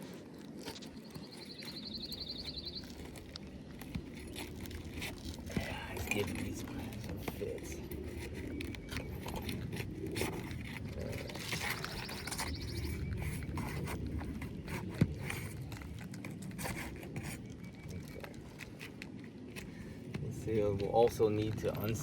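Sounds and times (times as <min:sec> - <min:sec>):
roof shingles scraping and crackling: 0:00.0 - 0:22.0.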